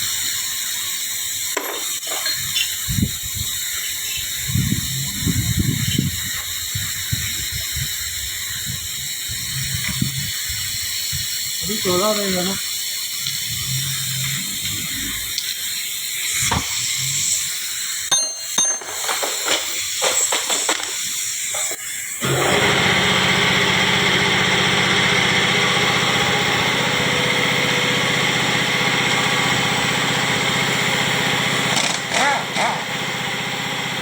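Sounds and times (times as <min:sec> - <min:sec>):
metal parts clinking: 0:18.2 - 0:20.9
machine humming loudly: 0:22.2 - 0:34.0.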